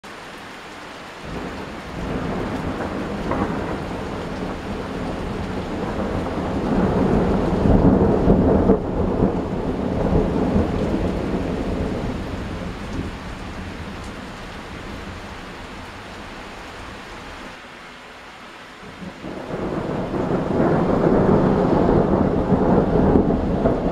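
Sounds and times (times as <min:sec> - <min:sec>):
steady rain: 0:00.0 - 0:23.9
thunder rolling: 0:01.2 - 0:14.0, 0:19.0 - 0:23.9.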